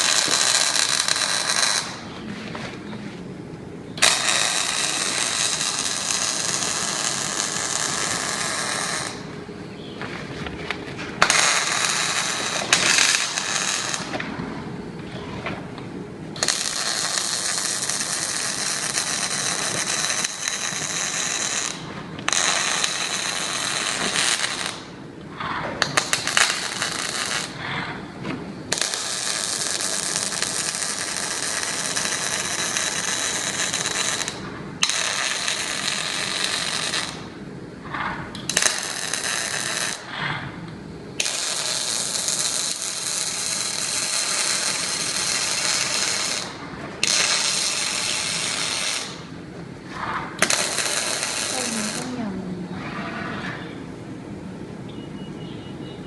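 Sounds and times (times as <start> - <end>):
robotic welding hissing and crackling: 0.0 - 2.0, 4.0 - 9.3, 11.2 - 14.2, 16.4 - 24.9, 25.9 - 27.6, 28.7 - 37.2, 38.4 - 40.1, 41.2 - 49.3, 50.4 - 52.3.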